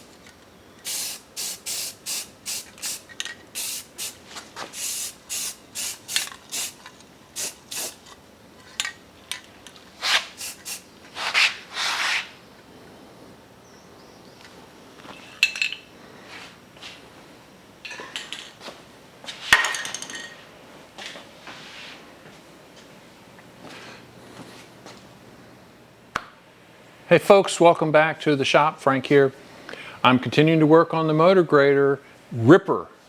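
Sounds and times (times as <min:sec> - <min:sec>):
spray can hissing bursts: 0:00.8 - 0:08.0, 0:10.0 - 0:11.6.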